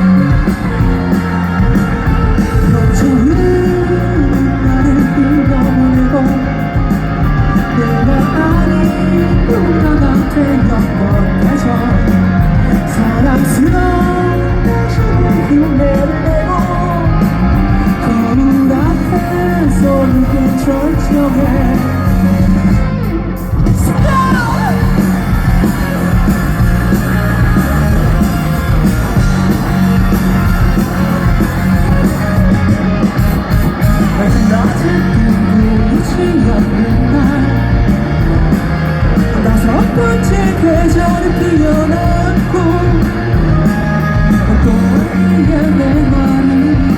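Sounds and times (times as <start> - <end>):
live rock band playing: 0.0 - 46.9
person singing and shouting: 23.8 - 26.2, 33.9 - 37.9.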